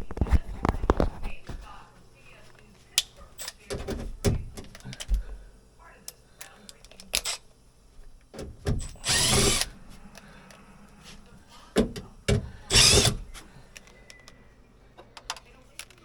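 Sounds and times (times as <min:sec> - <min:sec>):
cordless drill spinning: 0:08.9 - 0:09.7, 0:12.6 - 0:13.3.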